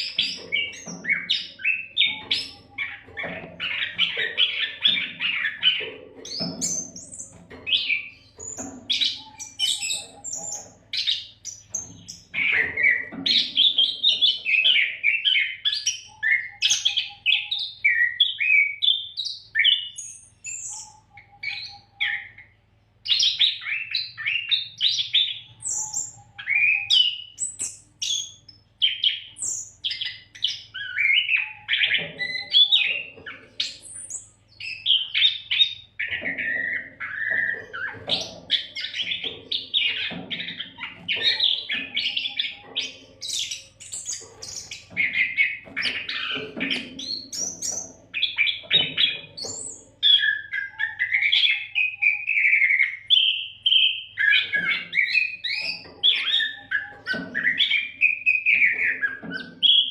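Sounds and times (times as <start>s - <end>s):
bird singing whistled phrases: 23.1s - 35.8s, 47.0s - 59.9s.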